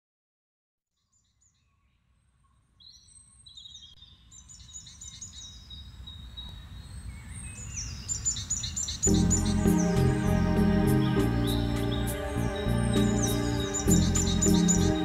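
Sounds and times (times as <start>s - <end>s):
songbirds chirping: 1.0s - 15.0s
low rumble: 9.1s - 15.0s.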